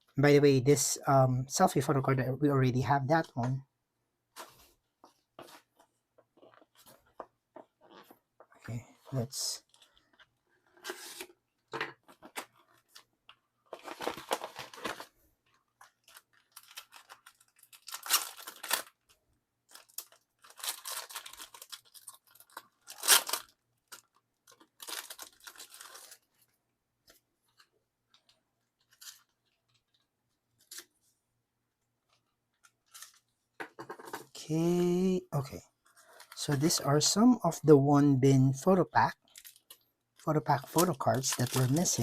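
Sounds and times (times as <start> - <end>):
packaging being torn open: 16.0 - 26.2, 40.6 - 42.0.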